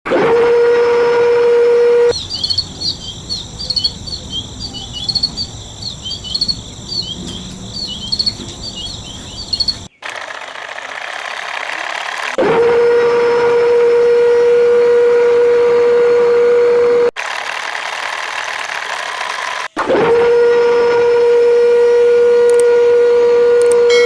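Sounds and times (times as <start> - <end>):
high insect drone: 2.1 - 9.9
birds chirping: 2.1 - 10.1.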